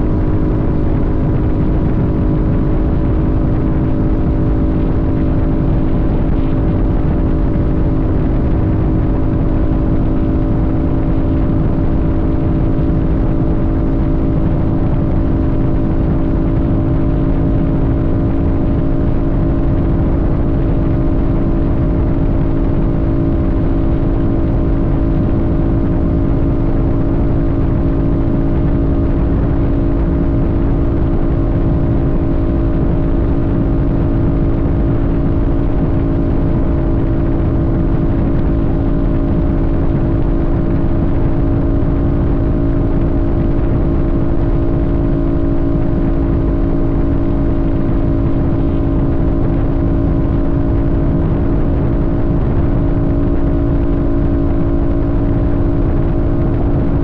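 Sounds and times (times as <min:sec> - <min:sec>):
motorcycle engine cruising: 0:00.0 - 0:57.0
wind and road noise: 0:00.0 - 0:57.0.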